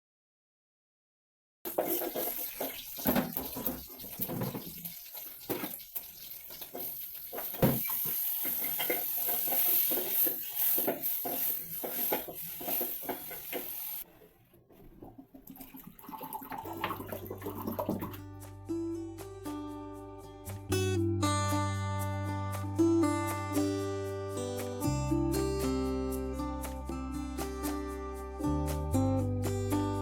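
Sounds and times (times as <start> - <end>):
knocks and clatter of objects: 1.7 - 4.8, 6.5 - 13.8
tap water running into sink: 1.7 - 14.1, 14.9 - 18.2.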